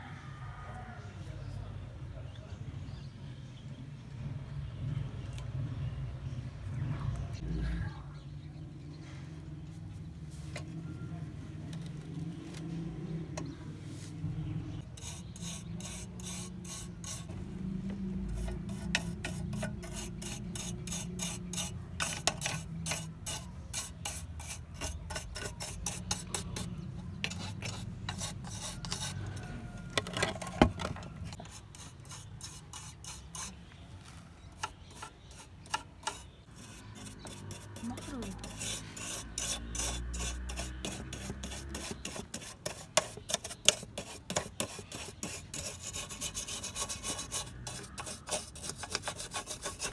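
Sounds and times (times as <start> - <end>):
rasping filing strokes: 14.8 - 33.6, 34.6 - 49.9.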